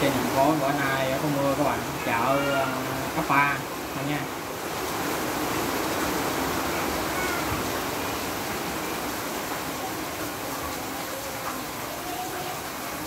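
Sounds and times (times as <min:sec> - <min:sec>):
heavy rain pouring: 0:00.0 - 0:13.0
faint animal calls: 0:06.6 - 0:08.1.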